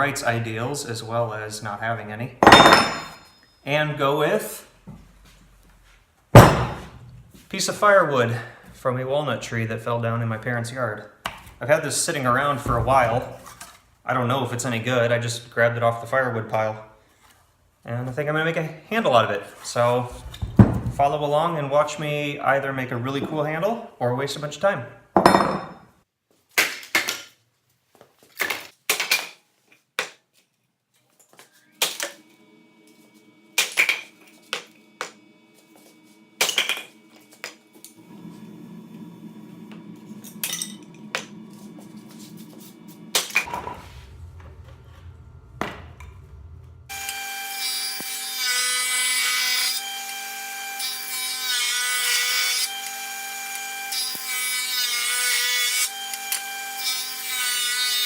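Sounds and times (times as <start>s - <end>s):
power tool running: 32.2s - 51.2s
machine whining: 37.0s - 48.2s.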